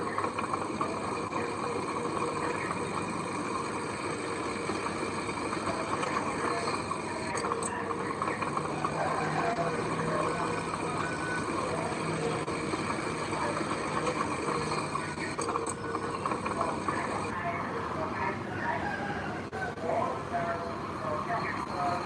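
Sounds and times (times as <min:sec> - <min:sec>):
heavy machinery diesel engine: 0:00.0 - 0:18.8.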